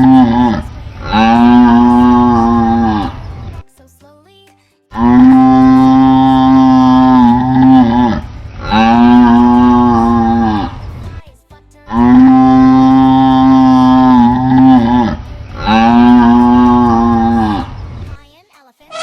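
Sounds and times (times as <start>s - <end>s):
cow mooing: 0.0s - 3.4s, 5.0s - 11.0s, 11.9s - 17.9s.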